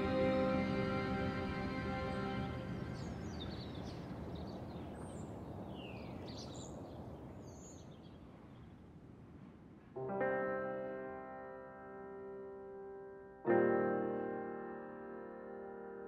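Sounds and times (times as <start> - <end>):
small birds chirping: 1.6 - 8.8.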